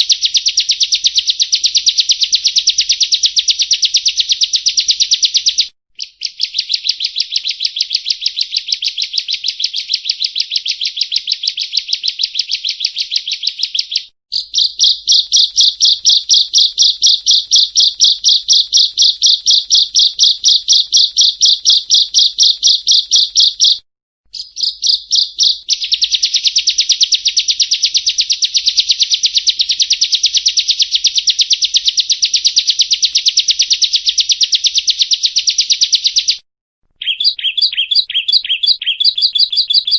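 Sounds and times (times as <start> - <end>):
bird calling with buzzy notes: 6.0 - 29.8, 37.0 - 39.9.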